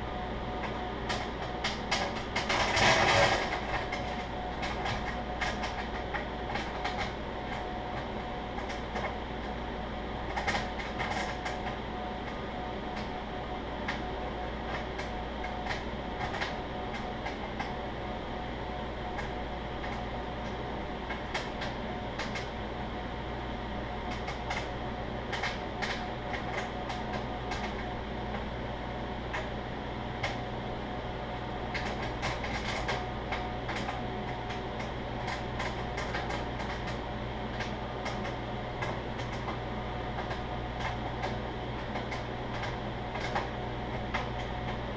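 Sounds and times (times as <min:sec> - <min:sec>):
microwave oven humming: 0:00.0 - 0:44.9
popcorn popping: 0:31.5 - 0:44.9.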